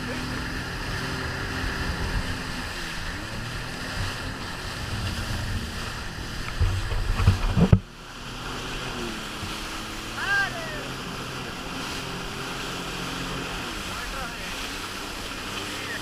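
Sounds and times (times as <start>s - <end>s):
wind buffeting microphone: 0.0s - 10.1s
jet ski engine running: 0.0s - 16.0s
rushing water: 0.0s - 16.0s.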